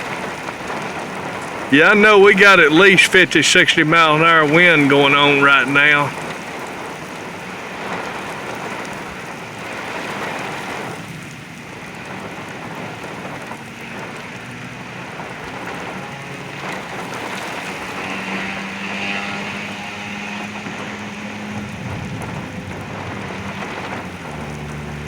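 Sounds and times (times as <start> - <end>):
heavy rain: 0.0 - 25.0
strong gusting wind: 19.6 - 25.0.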